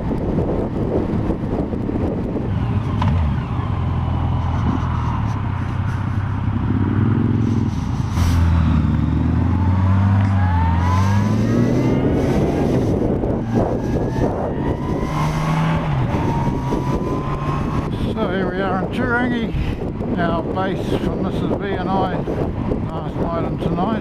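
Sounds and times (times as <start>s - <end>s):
motorcycle engine running: 0.0s - 10.3s
wind rushing over microphone: 0.0s - 24.0s.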